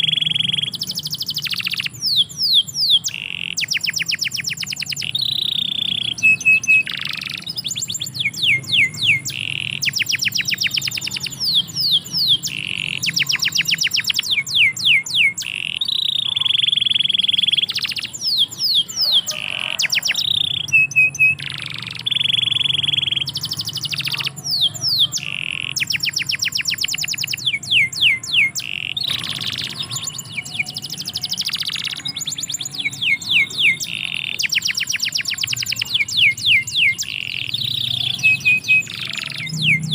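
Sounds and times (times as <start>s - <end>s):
canary singing trills and whistles: 0.0s - 39.9s.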